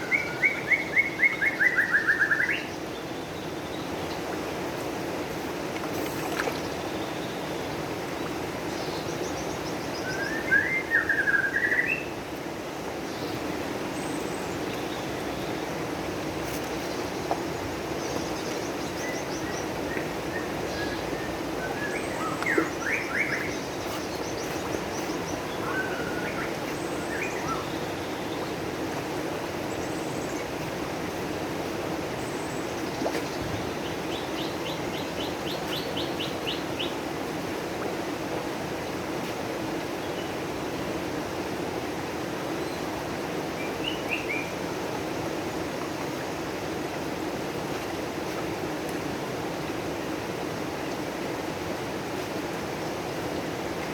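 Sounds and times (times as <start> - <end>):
running water: 0.0 - 53.9
small birds chirping: 16.5 - 28.7.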